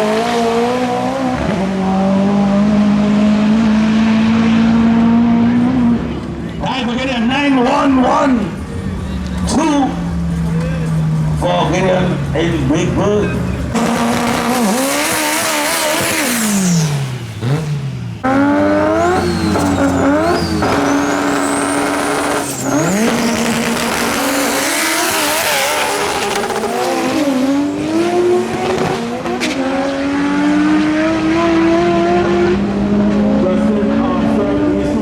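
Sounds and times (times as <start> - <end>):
race car engine revving: 0.0 - 35.0
high screech: 18.3 - 27.5.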